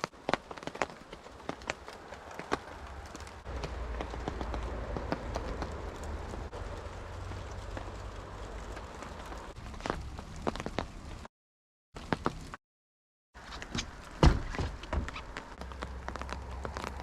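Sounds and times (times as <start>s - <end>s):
close raindrops ticking: 0.0s - 11.3s, 13.6s - 17.0s
rain hiss: 0.0s - 11.3s.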